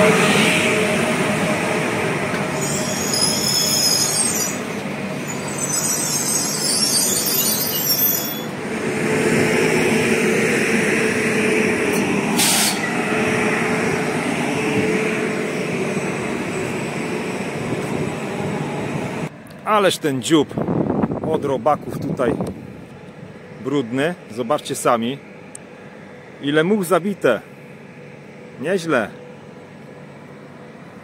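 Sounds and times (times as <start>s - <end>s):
train equipment humming: 0.0s - 31.0s
train high-pitched squeal: 2.4s - 8.6s, 12.4s - 14.0s
brief hiss: 12.4s - 12.8s.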